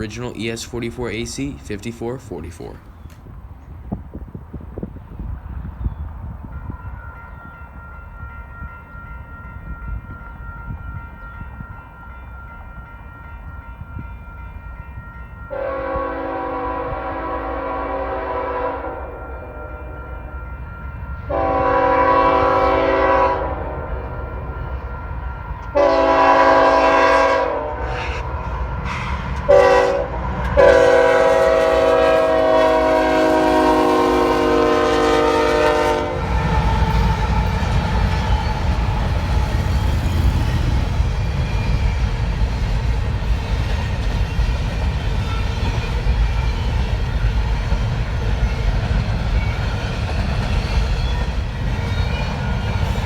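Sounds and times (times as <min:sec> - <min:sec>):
freight train rumbling past: 0:00.0 - 0:53.0
locomotive air horn: 0:15.5 - 0:20.6, 0:21.3 - 0:37.1.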